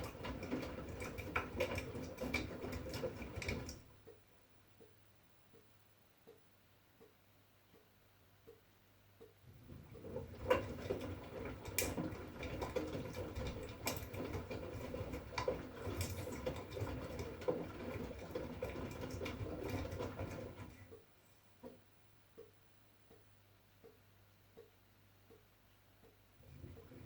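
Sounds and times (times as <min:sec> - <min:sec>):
laundry tumbling in water: 0:00.0 - 0:03.9, 0:09.5 - 0:20.9
washing machine drum turning: 0:00.0 - 0:03.9, 0:09.5 - 0:21.0, 0:26.4 - 0:27.0.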